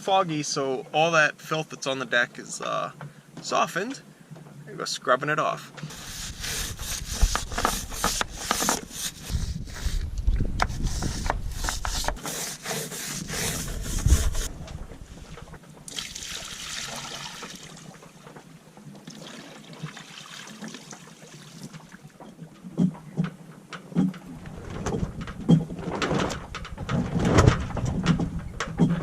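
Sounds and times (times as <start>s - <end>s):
brush scrubbing a deck: 5.8s - 15.6s
water trickling and sloshing: 14.4s - 23.3s
knocks: 22.8s - 29.0s.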